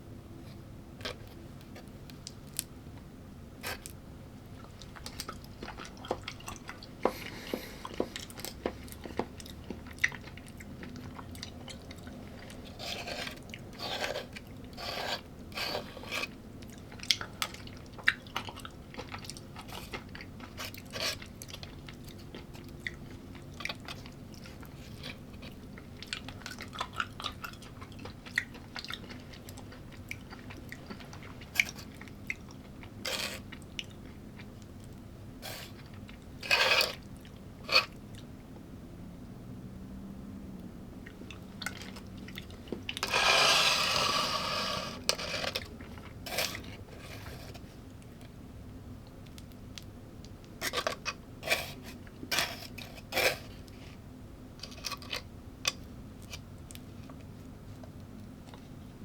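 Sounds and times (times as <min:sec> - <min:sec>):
person chewing crunchy food: 0:03.6 - 0:38.3, 0:41.0 - 0:48.4.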